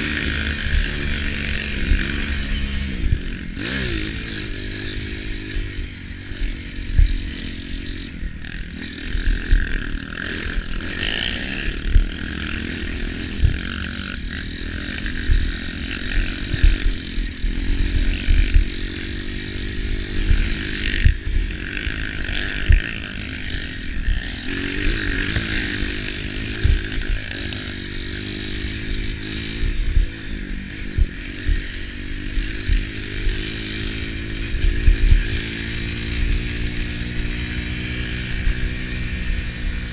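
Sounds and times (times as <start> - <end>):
trail motorcycle engines revving: 0.0 - 39.9
low thumps: 26.6 - 27.1.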